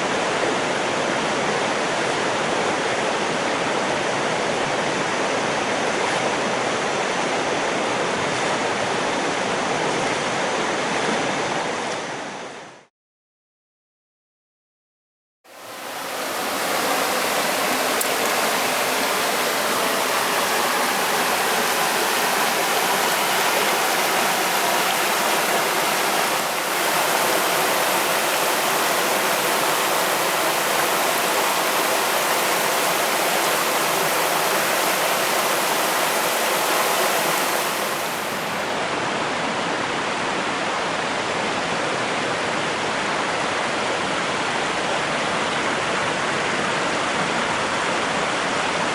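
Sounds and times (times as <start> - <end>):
stream rushing over rocks: 15.5 - 48.9.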